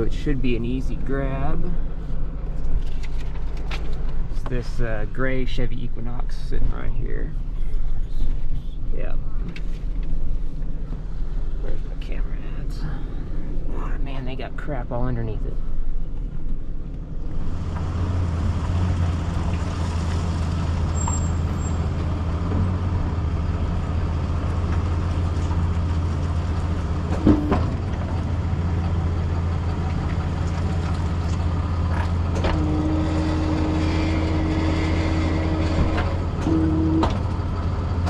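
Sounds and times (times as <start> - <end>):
diesel truck engine running: 10.2 - 38.0.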